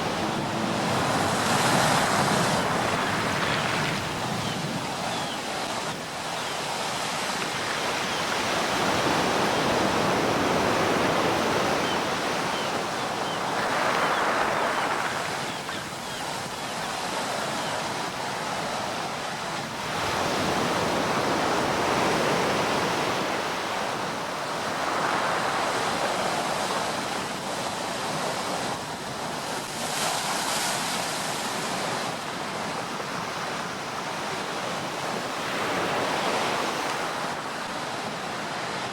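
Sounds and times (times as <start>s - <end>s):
sea waves breaking: 0.0s - 6.3s.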